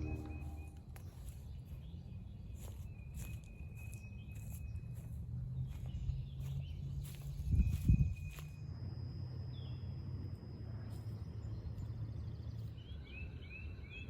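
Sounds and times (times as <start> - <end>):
high thin call: 0.0 - 0.8
low rumble: 0.0 - 1.2
footsteps on trail: 0.0 - 8.6.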